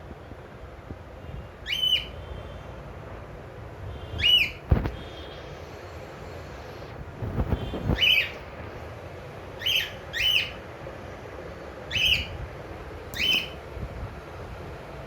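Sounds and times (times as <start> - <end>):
cockatiel shrill calls: 1.6 - 2.1, 4.2 - 4.6, 8.0 - 8.4, 9.6 - 10.6, 11.9 - 12.4, 13.2 - 13.6.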